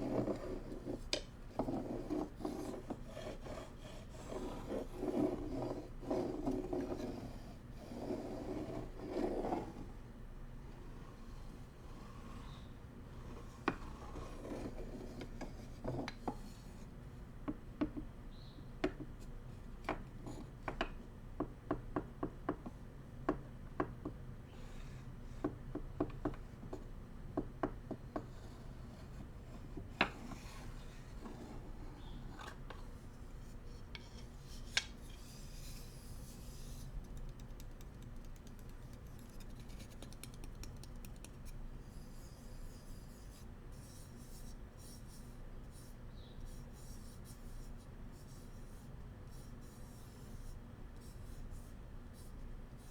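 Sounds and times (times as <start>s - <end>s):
soft rubbing and scraping: 0.0s - 10.0s, 28.4s - 37.0s.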